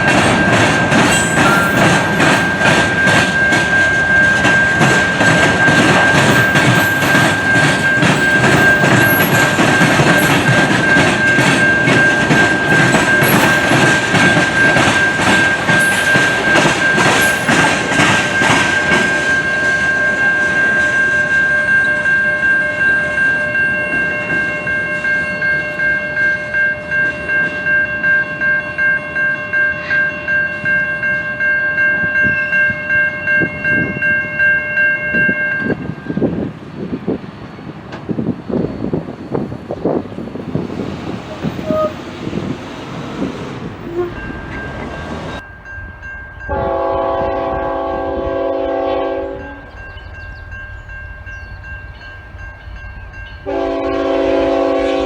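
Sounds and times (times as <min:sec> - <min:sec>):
train wheels clacking over rails: 0:00.0 - 0:21.4, 0:37.8 - 0:55.0
crossing bell ringing: 0:00.0 - 0:36.6, 0:37.6 - 0:55.0.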